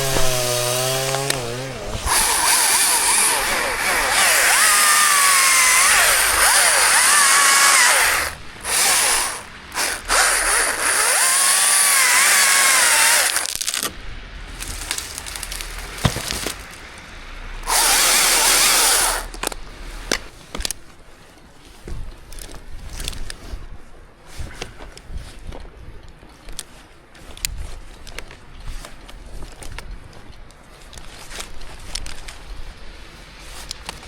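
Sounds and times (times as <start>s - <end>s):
chainsaw cutting at full throttle: 0.0s - 13.8s, 17.6s - 19.4s.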